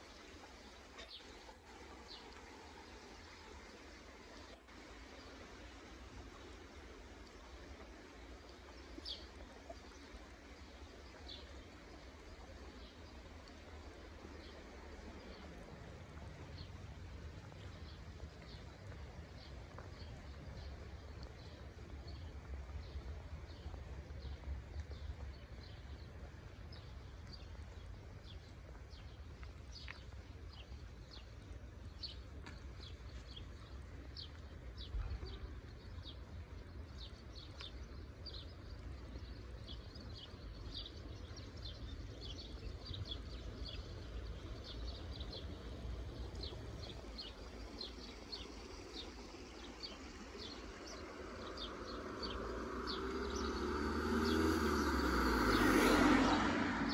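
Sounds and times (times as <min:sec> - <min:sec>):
small birds chirping: 0:16.4 - 0:56.9
vehicle approaching: 0:40.9 - 0:56.9.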